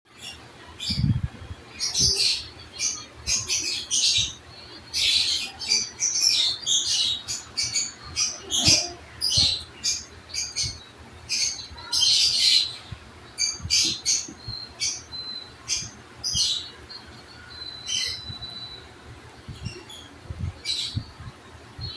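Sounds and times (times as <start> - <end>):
pet bird chirping and squawking: 6.3 - 10.7.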